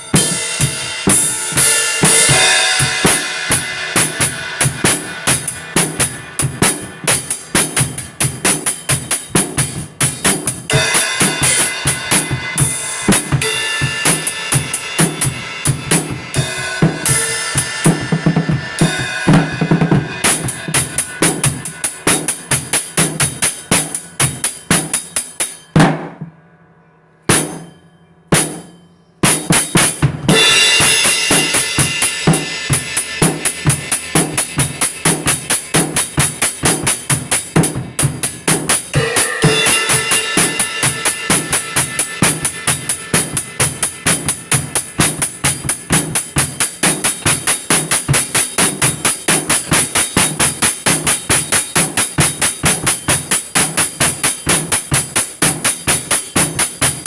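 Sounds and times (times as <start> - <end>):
drum kit playing fast beat: 0.0 - 26.3, 27.3 - 57.0.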